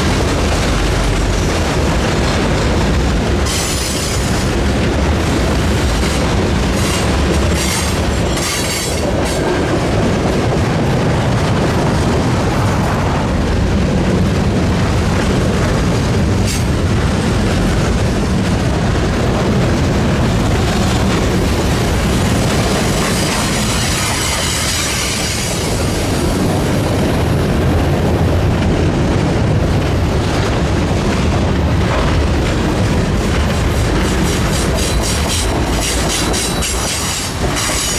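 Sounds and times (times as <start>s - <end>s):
freight train rumbling past: 0.0s - 37.9s.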